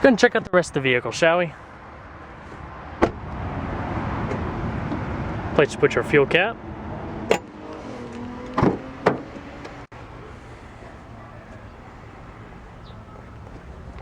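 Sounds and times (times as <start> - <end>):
car doors and panels clicking: 7.2 - 9.8.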